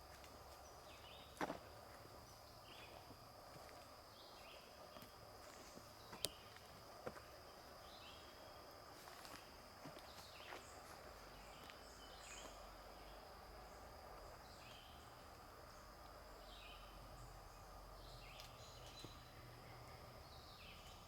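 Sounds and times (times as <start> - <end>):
high insect trill: 0.0 - 21.0.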